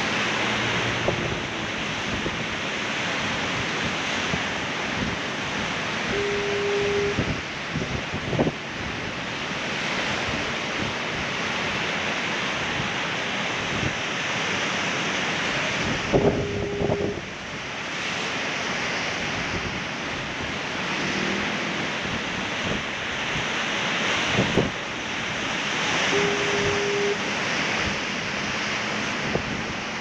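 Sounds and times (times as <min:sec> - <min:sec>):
ocean surf washing against rocks: 0:00.0 - 0:30.0
brief low tone: 0:06.1 - 0:07.2, 0:26.1 - 0:27.2.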